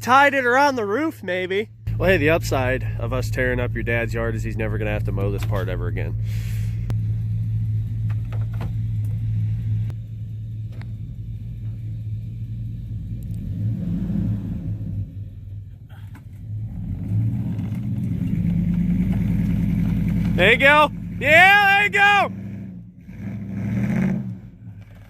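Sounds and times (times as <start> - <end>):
truck engine rumbling: 0.0 - 25.0.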